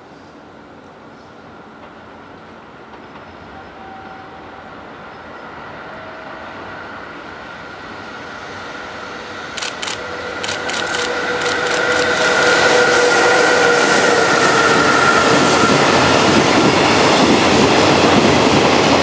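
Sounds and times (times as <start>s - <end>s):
locomotive running noise: 9.5s - 19.0s.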